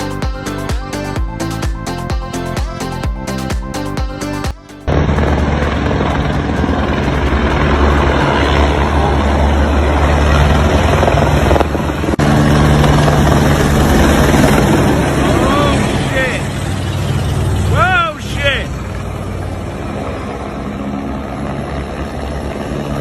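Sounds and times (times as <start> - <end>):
music: 0.0 - 8.2
mechanical drone with low hum: 4.9 - 17.7.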